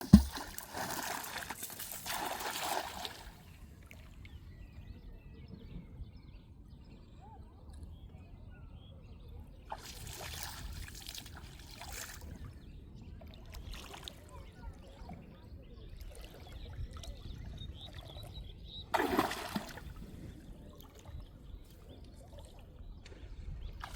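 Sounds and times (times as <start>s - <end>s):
water sloshing and trickling: 0.0s - 4.4s, 9.7s - 12.6s, 18.9s - 23.9s.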